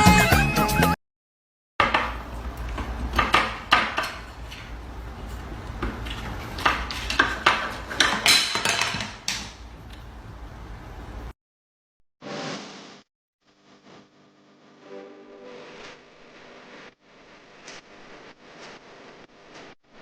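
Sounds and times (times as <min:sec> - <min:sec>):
hard objects clattering: 0:01.8 - 0:09.6.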